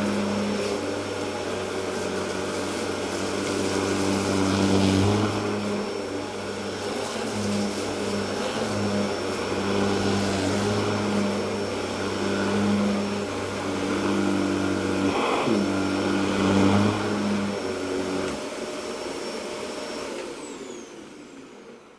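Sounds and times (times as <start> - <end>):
vacuum motor whine: 0.0 - 21.9.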